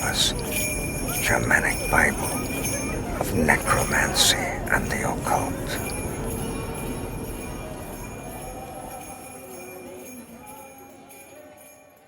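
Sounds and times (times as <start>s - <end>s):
small bells shaking and jingling: 0.0s - 12.0s.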